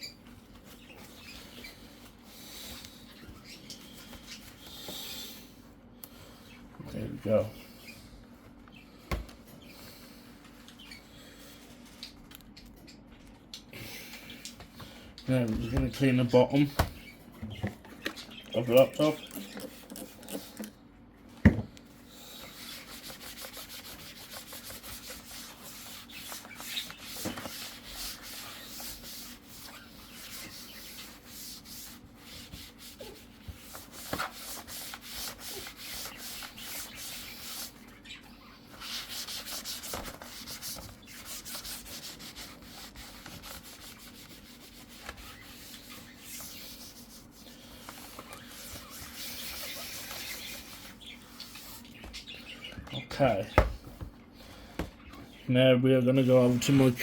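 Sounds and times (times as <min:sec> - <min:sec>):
wipe scrubbing laptop: 0:22.1 - 0:38.0, 0:38.7 - 0:52.4.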